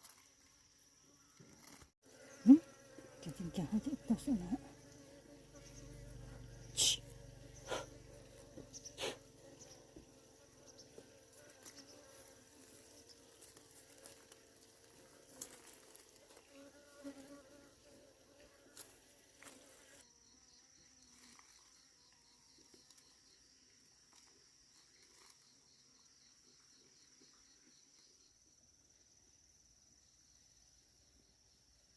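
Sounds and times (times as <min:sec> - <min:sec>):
high insect trill: 0:00.0 - 0:18.0
flying insects buzzing: 0:00.1 - 0:24.2.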